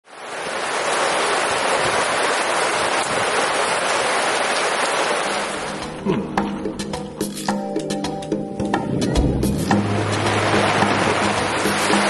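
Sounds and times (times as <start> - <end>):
heavy rain pouring: 0.0 - 6.2, 9.2 - 12.0.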